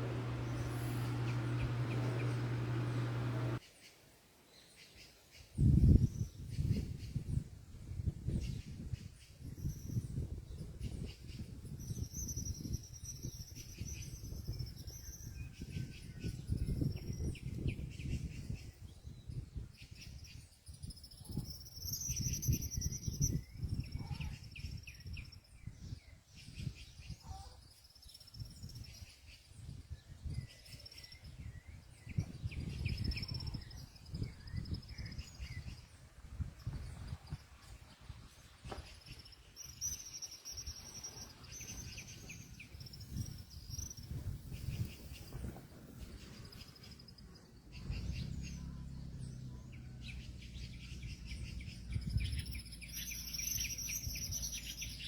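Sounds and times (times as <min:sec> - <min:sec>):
low uneven rumble: 0:00.0 - 0:03.6, 0:44.6 - 0:52.9
small birds chirping: 0:00.0 - 0:03.8, 0:11.9 - 0:55.0.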